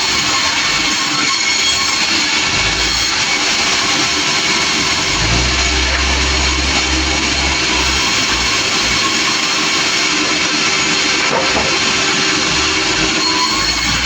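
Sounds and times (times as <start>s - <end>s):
sawmill machine noise: 0.0s - 14.0s
deep low drone: 4.8s - 9.2s.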